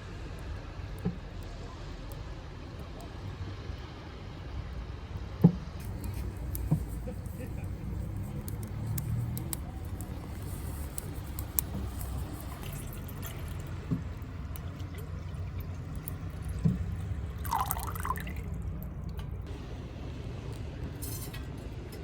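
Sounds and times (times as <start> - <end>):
steady low rumble: 0.0 - 21.1
wood fire crackling and popping: 5.8 - 19.7.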